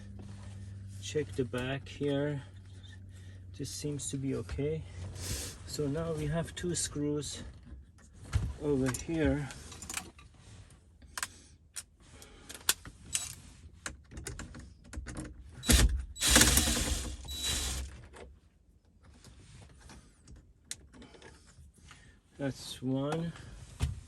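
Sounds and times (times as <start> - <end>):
cordless drill running: 15.6 - 17.9.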